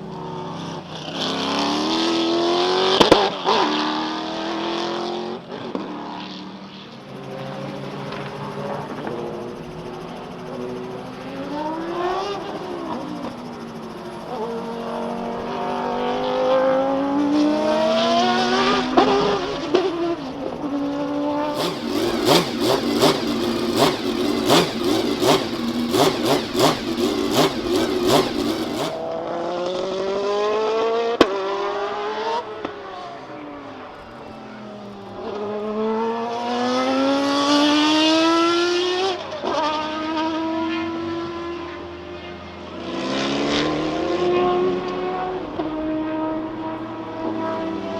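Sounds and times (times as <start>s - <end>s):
racing car engines passing: 0.0s - 47.9s.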